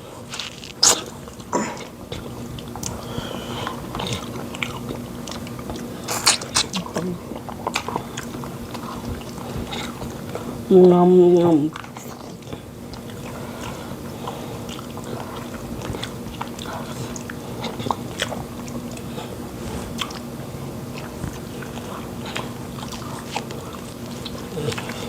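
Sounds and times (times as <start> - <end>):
low steady hum: 0.0 - 25.0
chewing and lip smacks: 0.1 - 25.0.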